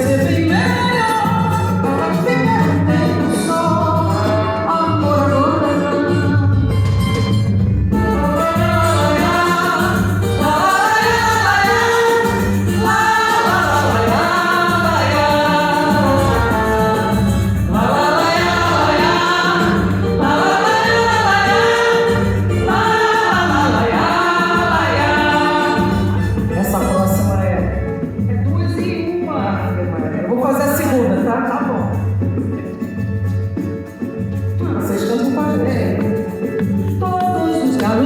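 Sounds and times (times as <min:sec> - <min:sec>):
samba band playing: 0:00.0 - 0:38.0
people singing together: 0:08.0 - 0:26.7.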